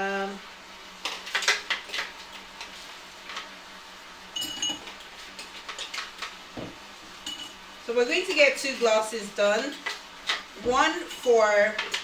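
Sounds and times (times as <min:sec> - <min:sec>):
glassware clinking: 0:04.4 - 0:04.9, 0:06.6 - 0:07.6.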